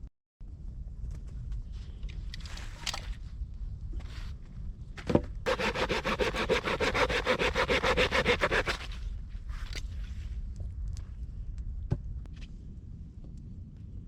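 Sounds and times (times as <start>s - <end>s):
rapid rasping: 5.5s - 8.9s.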